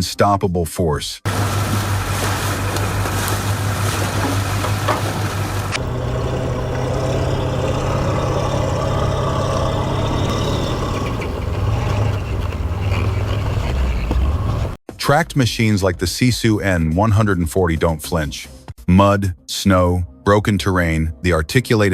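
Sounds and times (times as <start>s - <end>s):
heavy diesel engine droning: 1.3s - 14.8s.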